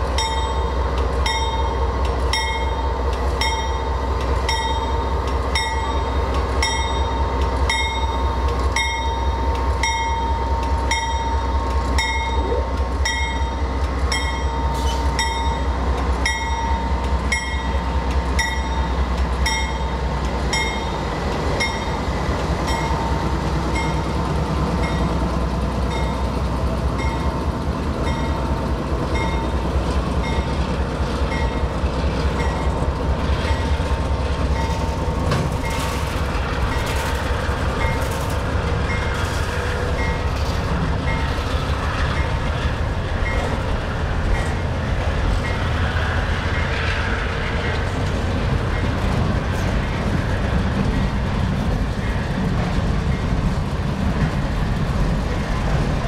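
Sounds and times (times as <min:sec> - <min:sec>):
diesel locomotive engine rumbling: 0:00.0 - 0:56.0
locomotive bell ringing: 0:00.1 - 0:24.2, 0:24.8 - 0:25.2, 0:25.8 - 0:26.4, 0:27.0 - 0:29.6, 0:30.2 - 0:30.5, 0:31.3 - 0:31.8, 0:32.4 - 0:32.8, 0:39.8 - 0:40.4.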